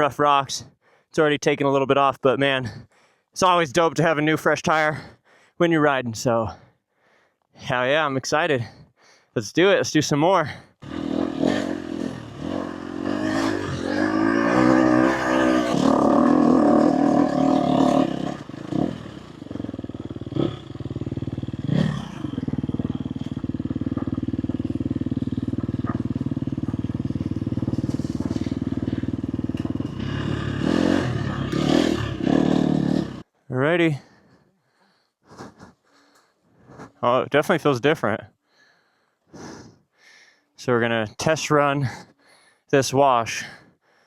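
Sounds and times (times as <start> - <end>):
dirt bike engine revving: 10.8 - 33.2.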